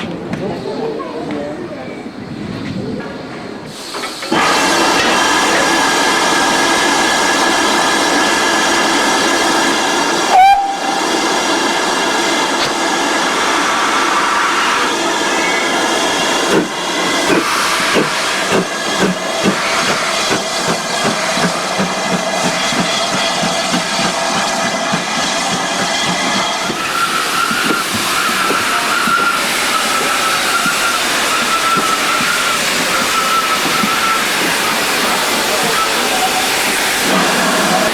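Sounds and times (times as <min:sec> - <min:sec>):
steam locomotive hissing: 0:03.2 - 0:37.9
locomotive engine beats: 0:15.0 - 0:37.9.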